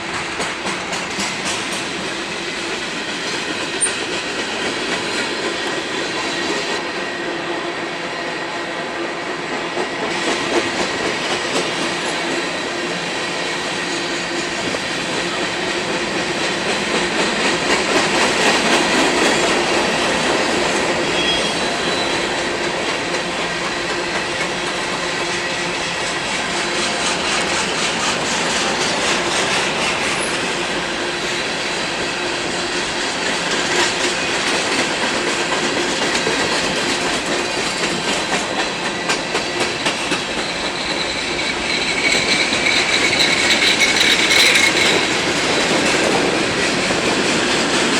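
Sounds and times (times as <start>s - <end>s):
train wheels clicking over rail joints: 0.0s - 7.4s, 9.0s - 47.9s
high wheel squeal: 20.8s - 30.6s, 39.1s - 46.6s.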